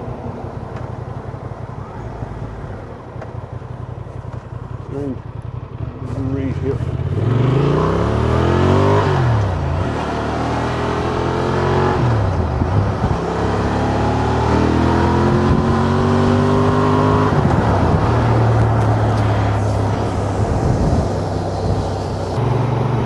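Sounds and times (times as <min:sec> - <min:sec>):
motorcycle engine accelerating: 0:00.0 - 0:23.0
wind rush: 0:15.3 - 0:23.0.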